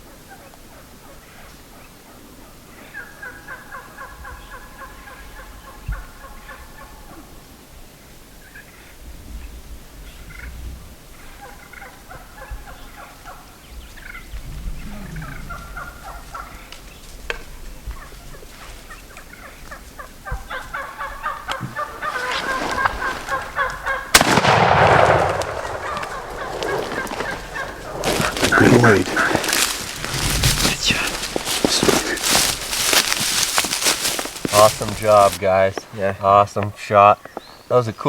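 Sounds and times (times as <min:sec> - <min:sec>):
wild turkeys gobbling: 0:00.0 - 0:07.4, 0:11.1 - 0:36.0
shotgun blast: 0:24.1 - 0:26.4.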